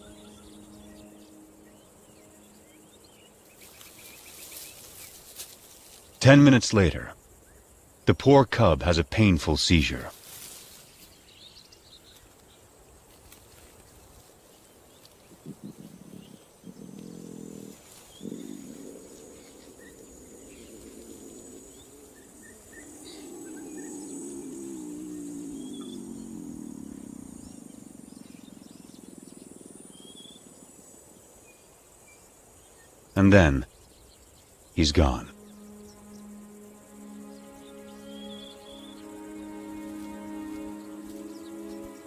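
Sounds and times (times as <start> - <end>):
bird chirps: 0.0 - 5.2, 31.5 - 42.0
crickets chirping: 0.0 - 42.0
lion grunting and moaning: 15.5 - 21.9.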